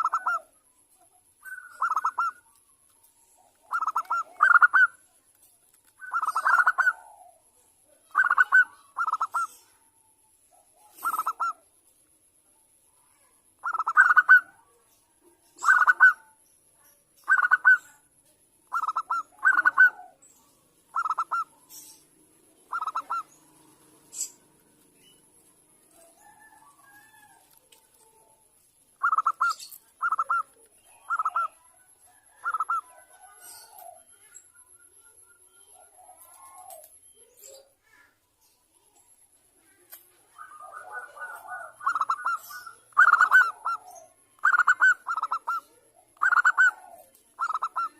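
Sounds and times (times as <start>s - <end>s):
dove cooing: 0.0s - 0.6s, 1.4s - 2.6s, 3.2s - 5.0s, 5.9s - 9.8s, 10.5s - 11.6s, 13.6s - 14.8s, 15.6s - 16.4s, 17.2s - 18.0s, 18.7s - 20.3s, 20.9s - 28.4s, 29.0s - 34.3s, 35.7s - 37.6s, 39.7s - 47.9s.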